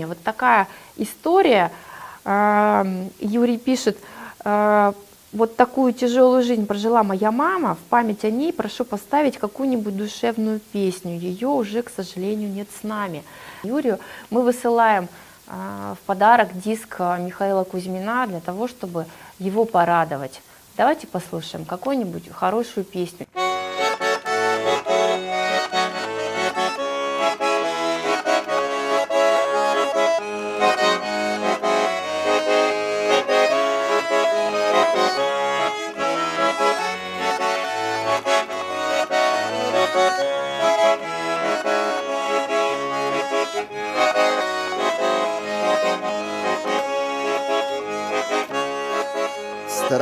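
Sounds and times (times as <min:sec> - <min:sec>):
button accordion melody: 0:23.4 - 0:50.0.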